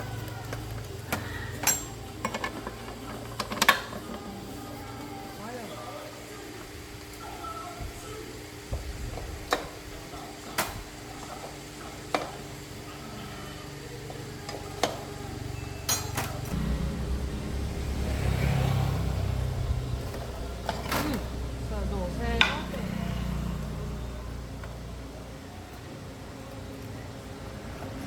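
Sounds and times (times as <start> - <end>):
metal tools clinking: 1.4 - 2.8, 15.8 - 16.6
low rumble: 16.5 - 21.7.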